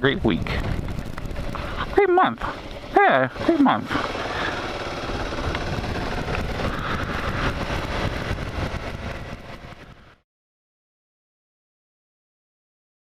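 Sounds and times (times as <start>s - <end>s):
motorcycle engine running: 0.0s - 10.2s
rush of noise: 0.0s - 10.2s.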